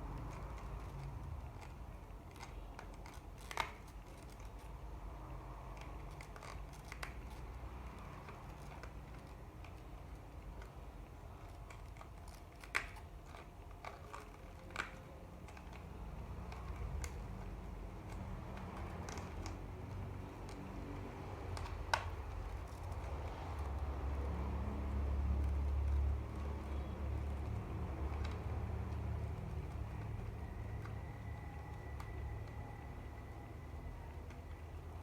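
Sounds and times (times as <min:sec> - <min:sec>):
small clicks and taps: 0:00.0 - 0:33.3
low steady hum: 0:00.0 - 0:35.0.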